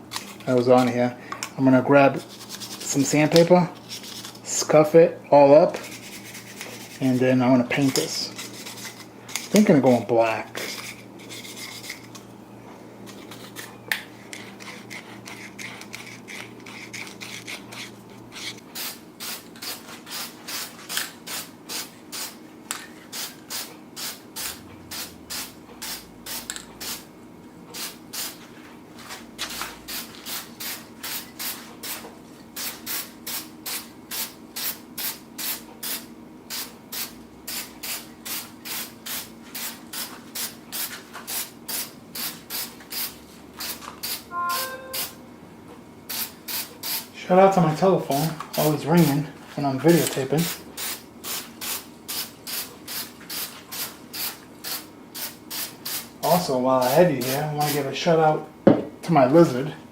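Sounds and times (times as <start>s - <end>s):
sandpaper rubbing on metal grill: 2.2s - 3.2s, 5.8s - 7.4s, 8.1s - 10.0s, 10.6s - 12.0s.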